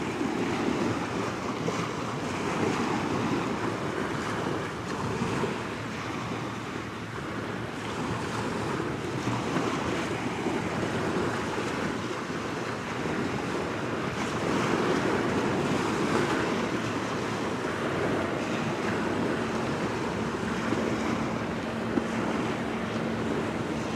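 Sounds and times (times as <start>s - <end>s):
waves washing on shore: 0.0s - 23.9s
wind on microphone: 0.0s - 23.9s.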